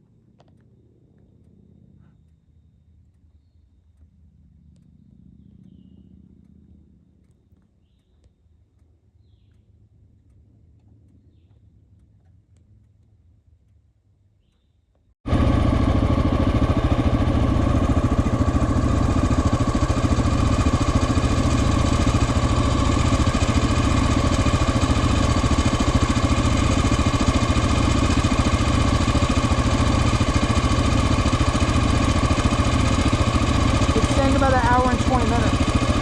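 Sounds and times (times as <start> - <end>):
motorcycle engine idling: 1.2 - 8.6, 15.3 - 36.0.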